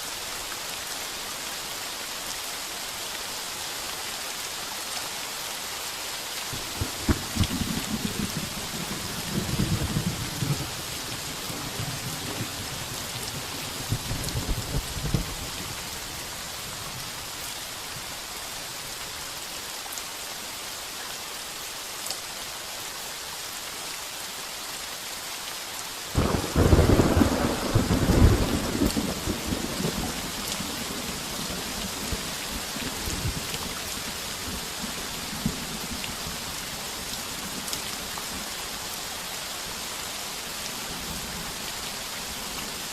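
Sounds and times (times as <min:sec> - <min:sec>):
heavy rain on a tin roof: 0:00.0 - 0:42.9
thunder rumbling: 0:06.6 - 0:10.8, 0:26.2 - 0:30.2
loud thunderclap: 0:06.7 - 0:08.5, 0:26.2 - 0:30.0.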